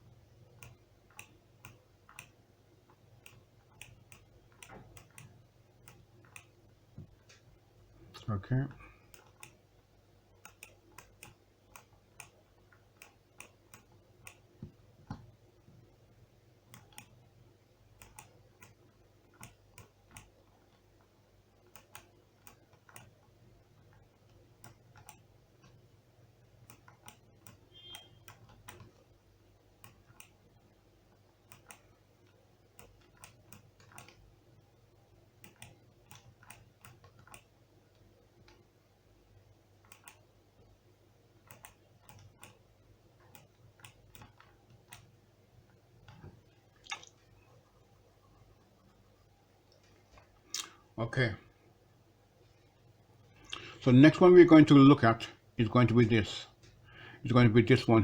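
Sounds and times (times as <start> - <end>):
low room hum: 0.0 - 58.0.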